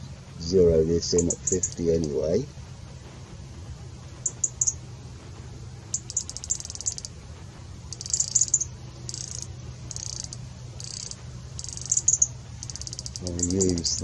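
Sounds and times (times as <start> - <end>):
low steady hum: 0.0 - 14.0
songbird trilling: 1.0 - 2.2, 4.2 - 4.8, 5.9 - 7.1, 7.9 - 14.0.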